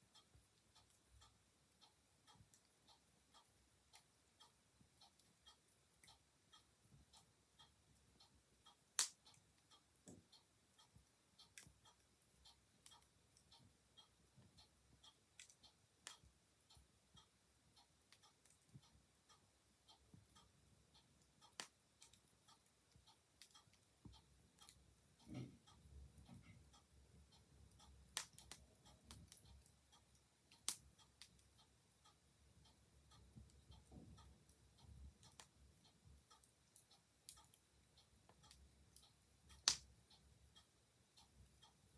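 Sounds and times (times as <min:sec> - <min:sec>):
clock ticking: 0:00.0 - 0:41.9
wood fire crackling: 0:08.9 - 0:10.3, 0:21.2 - 0:22.3, 0:27.9 - 0:29.7, 0:30.6 - 0:31.5, 0:38.3 - 0:40.0.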